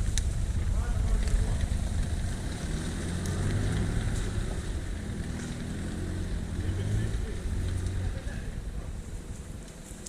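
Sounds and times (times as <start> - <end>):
suv engine running at low revs: 0.0 - 9.7.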